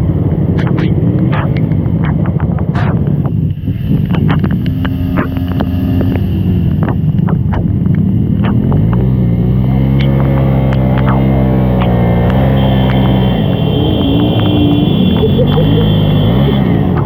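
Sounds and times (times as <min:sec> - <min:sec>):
engine clicks and knocks: 0:00.0 - 0:13.3
vehicle engine running: 0:00.0 - 0:17.0.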